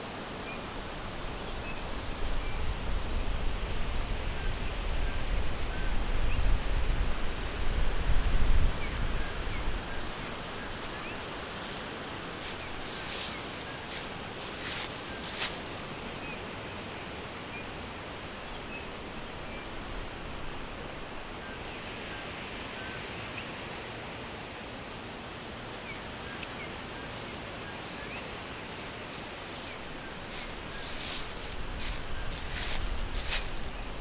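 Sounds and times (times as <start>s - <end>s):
steady rushing hiss: 7.3s - 16.2s, 23.6s - 34.0s
rustling: 9.0s - 16.1s, 25.5s - 34.0s.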